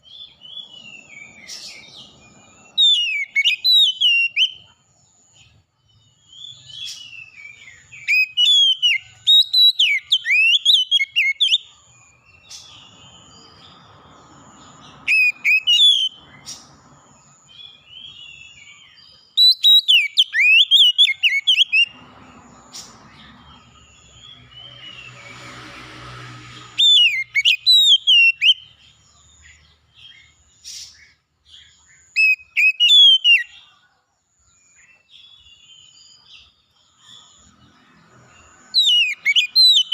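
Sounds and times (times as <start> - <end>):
bird singing whistled phrases: 2.7 - 4.6, 6.4 - 11.7, 15.0 - 16.2, 19.4 - 21.9, 26.8 - 28.7, 32.0 - 33.7, 38.8 - 39.9.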